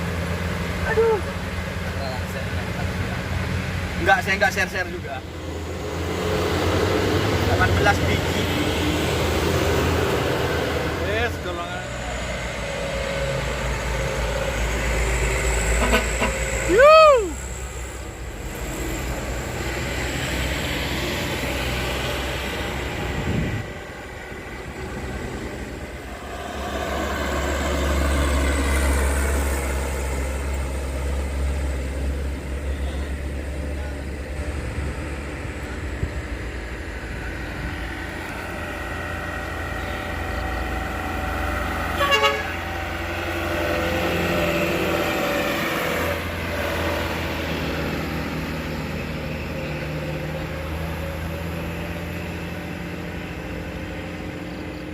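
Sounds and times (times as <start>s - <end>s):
truck diesel engines passing: 0.0s - 54.9s
short horn toot: 15.7s - 16.6s, 42.0s - 42.6s.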